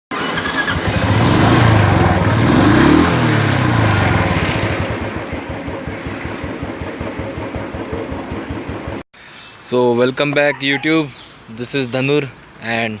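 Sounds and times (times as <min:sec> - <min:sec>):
motorcycle engine revving and idling: 0:00.1 - 0:09.0.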